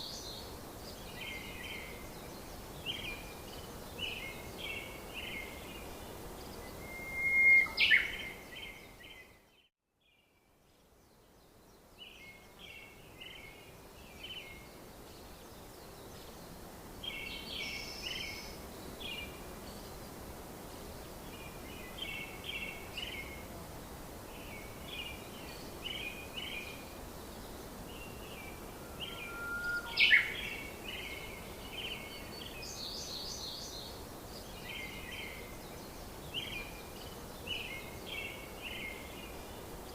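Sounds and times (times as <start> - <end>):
soft background hiss: 0.0 - 39.9
birds chirping: 24.9 - 33.8.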